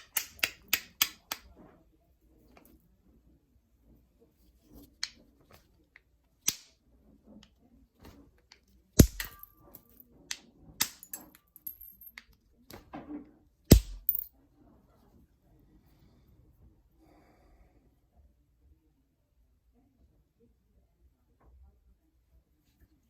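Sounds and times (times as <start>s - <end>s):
stone flintknapping clicks: 0.0s - 1.4s, 9.0s - 9.5s.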